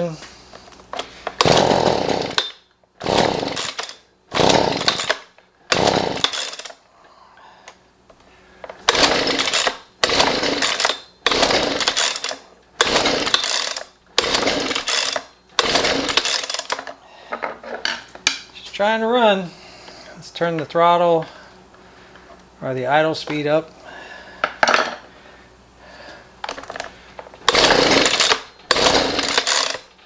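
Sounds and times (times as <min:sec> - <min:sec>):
small engine pull-starting: 0:00.9 - 0:06.8, 0:08.7 - 0:16.9, 0:26.5 - 0:30.0.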